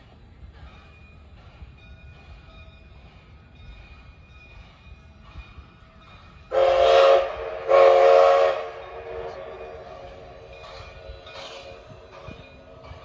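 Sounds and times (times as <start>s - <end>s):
locomotive whistle blasts: 6.5s - 10.0s.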